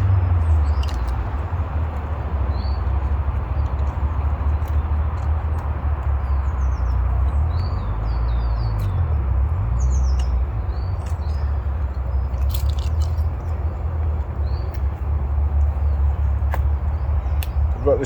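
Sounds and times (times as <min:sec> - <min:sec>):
wind buffeting microphone: 0:13.5 - 0:18.0.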